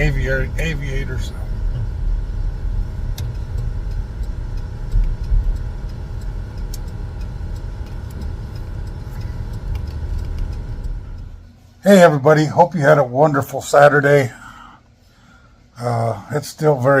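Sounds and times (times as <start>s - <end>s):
car road and engine noise: 0.0s - 11.6s
faint clicks: 3.1s - 11.4s.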